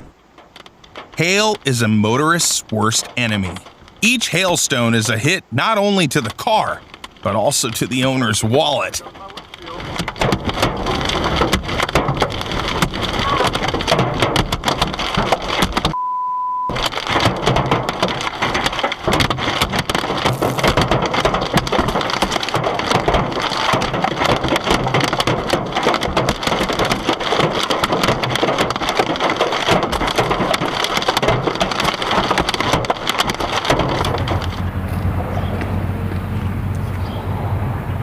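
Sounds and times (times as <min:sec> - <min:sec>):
hailstones pelting a car: 0:00.0 - 0:16.0, 0:16.7 - 0:36.7.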